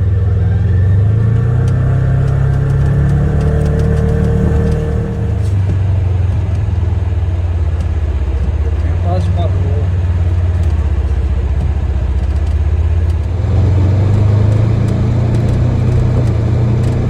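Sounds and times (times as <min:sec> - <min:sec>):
utility vehicle engine running: 0:00.0 - 0:17.0.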